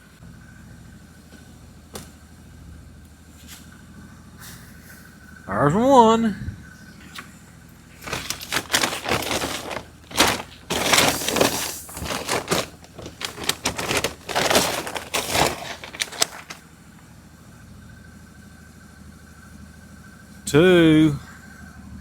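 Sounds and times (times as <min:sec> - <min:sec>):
feed pellets rattling: 0:08.0 - 0:16.6.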